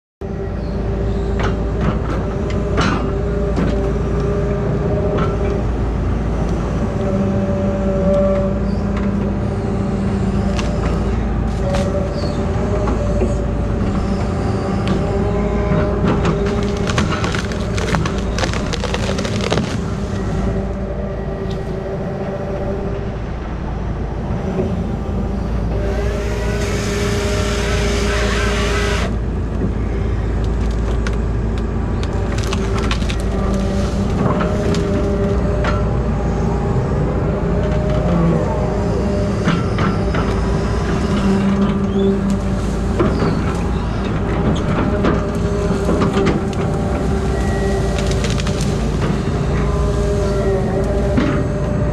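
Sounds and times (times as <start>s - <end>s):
machine engine running: 0.4s - 51.9s
wood cracking and snapping: 15.7s - 20.5s, 30.4s - 35.4s, 43.0s - 49.2s
saw cutting through wood: 25.7s - 29.2s.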